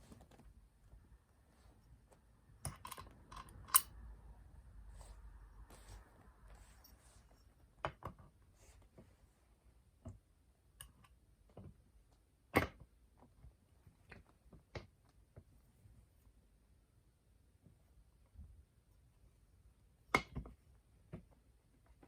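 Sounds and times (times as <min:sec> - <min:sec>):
metal parts and tools clicking: 0:02.6 - 0:03.9.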